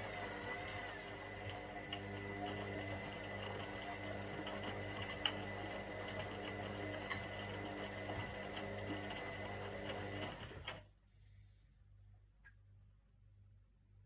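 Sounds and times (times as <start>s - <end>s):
washing machine humming: 0.0s - 11.0s.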